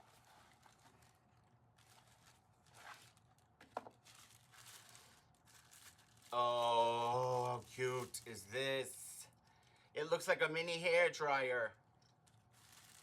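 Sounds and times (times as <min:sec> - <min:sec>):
packaging rustling: 0:00.0 - 0:08.3, 0:12.2 - 0:13.0.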